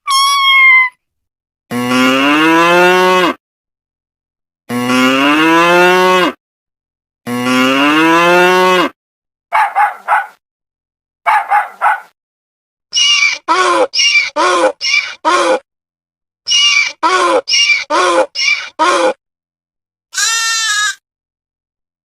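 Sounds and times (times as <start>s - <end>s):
cow mooing: 1.7s - 3.4s, 4.7s - 6.4s, 7.3s - 9.0s.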